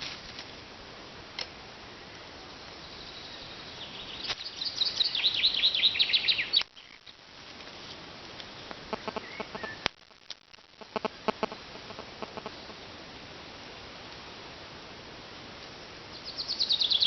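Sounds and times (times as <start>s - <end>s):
songbird singing descending notes: 2.8s - 7.0s, 16.1s - 17.0s.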